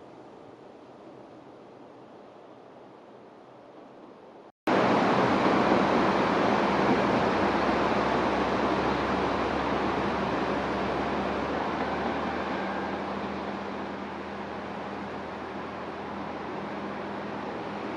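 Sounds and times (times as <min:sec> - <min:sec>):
quiet steady rushing: 0:00.0 - 0:17.9
railcar wheels and engine rushing: 0:00.0 - 0:17.9
low engine hum: 0:04.7 - 0:17.9.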